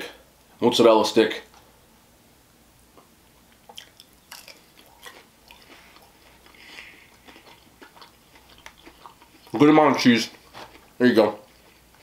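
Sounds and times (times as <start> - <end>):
quiet chewing: 3.0 - 12.0
crisp crunching bites: 3.7 - 10.9.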